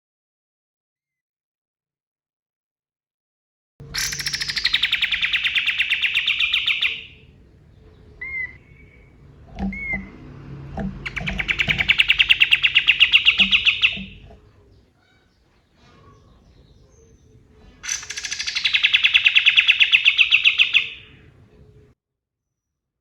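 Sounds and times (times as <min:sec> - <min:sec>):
bird singing sharp trills: 0:03.8 - 0:15.2, 0:15.8 - 0:21.9
low knocks: 0:07.3 - 0:14.9.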